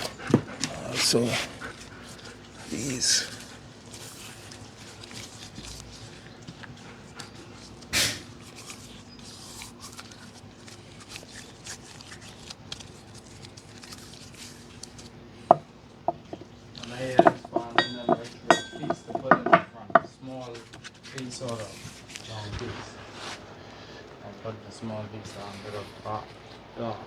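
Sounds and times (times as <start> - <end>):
ringing metallic clinks: 17.2 - 19.7.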